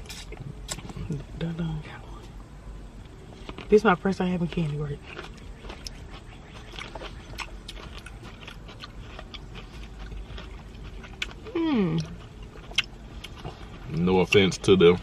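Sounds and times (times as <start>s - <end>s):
crunching candy coating: 3.2s - 14.9s.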